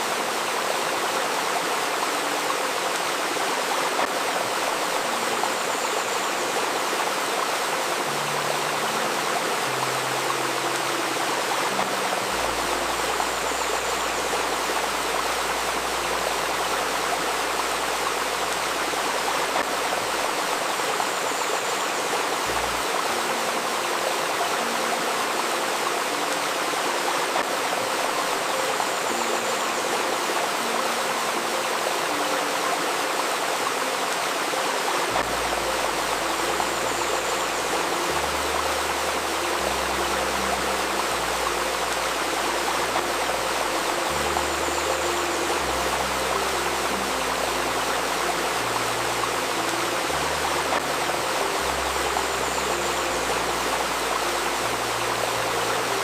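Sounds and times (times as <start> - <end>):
flowing stream: 0.0 - 56.0.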